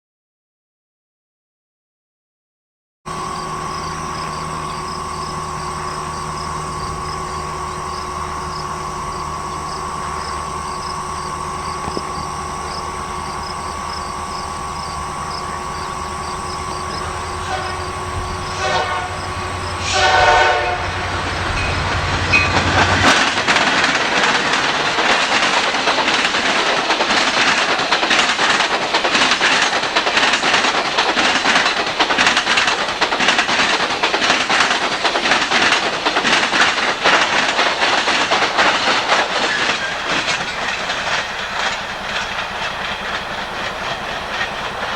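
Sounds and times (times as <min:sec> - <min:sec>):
train horn blasts: 0:03.1 - 0:23.2
diesel locomotive engines: 0:03.1 - 0:44.9
train cars clattering on rails: 0:03.1 - 0:44.9.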